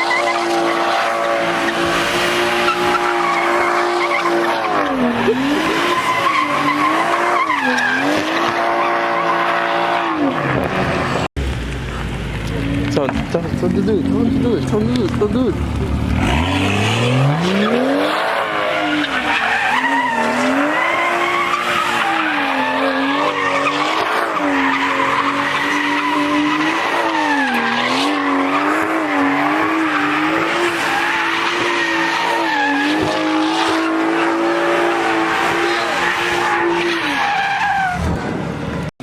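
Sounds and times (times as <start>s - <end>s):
tyres squealing and skidding: 0.0s - 11.3s, 11.9s - 38.9s
car engine revving: 0.0s - 39.0s.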